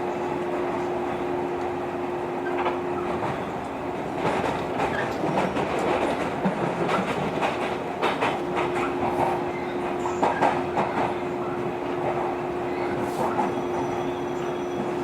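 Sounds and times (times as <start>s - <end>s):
train rumble: 0.0s - 15.0s
wheels clacking over rail joints: 2.4s - 15.0s.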